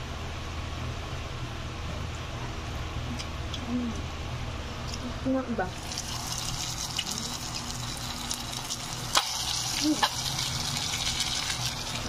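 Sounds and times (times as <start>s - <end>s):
food frying in hot oil: 5.7s - 12.0s.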